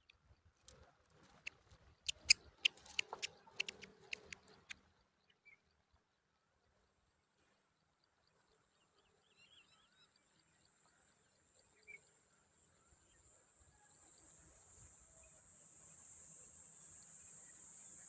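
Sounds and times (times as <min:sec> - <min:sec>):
faint bird chirps: 0:01.3 - 0:06.0.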